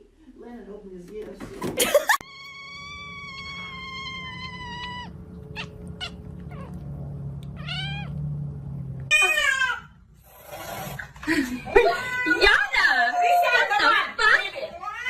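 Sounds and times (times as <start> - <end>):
cat meowing: 2.2 - 6.8, 7.5 - 8.2.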